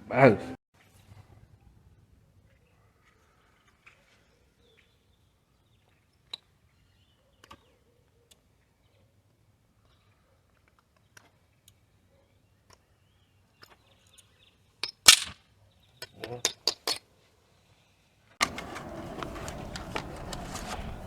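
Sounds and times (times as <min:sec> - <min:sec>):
sharp clatter: 0:14.9 - 0:15.4.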